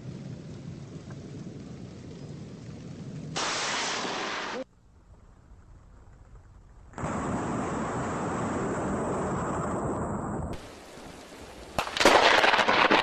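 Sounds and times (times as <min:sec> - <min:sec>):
steady hiss: 0:03.2 - 0:05.7, 0:10.6 - 0:12.5
thunderclap: 0:06.9 - 0:13.0.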